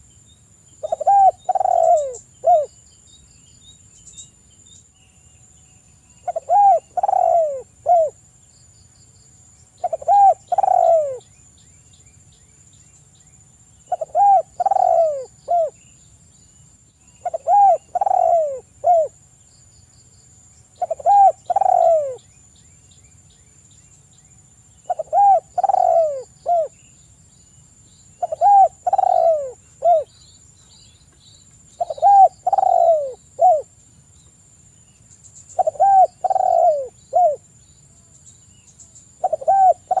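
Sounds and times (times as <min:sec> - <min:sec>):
dove cooing: 0:00.8 - 0:02.7, 0:06.2 - 0:08.2, 0:09.8 - 0:11.2, 0:13.9 - 0:15.8, 0:17.2 - 0:19.2, 0:20.8 - 0:22.2, 0:24.8 - 0:26.8, 0:28.2 - 0:30.1, 0:31.8 - 0:33.7, 0:35.6 - 0:37.4, 0:39.2 - 0:40.0.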